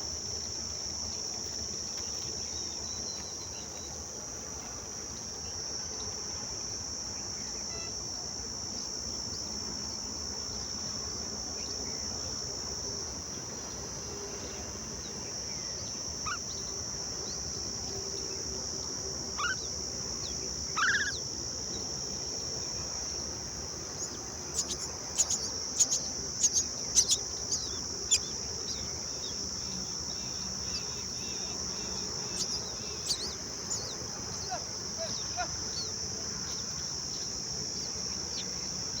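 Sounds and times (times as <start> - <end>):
crickets chirring: 0.0 - 39.0
mynas calling: 16.2 - 16.6, 19.3 - 21.3, 24.5 - 37.3.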